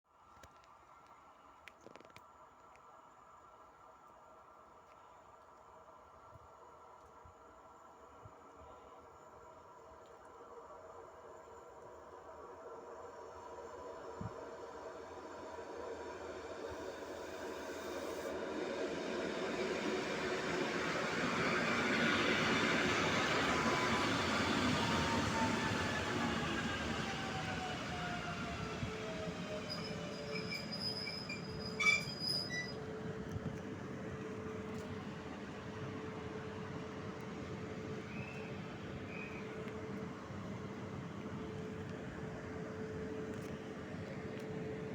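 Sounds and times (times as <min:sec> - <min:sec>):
train rumbling: 0:09.2 - 0:44.9.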